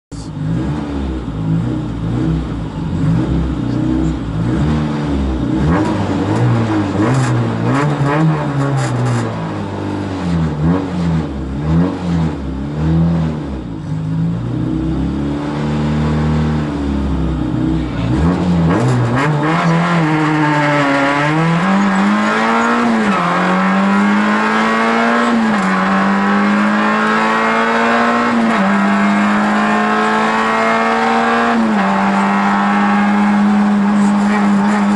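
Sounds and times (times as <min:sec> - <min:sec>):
rally car engine revving: 0:00.1 - 0:34.9.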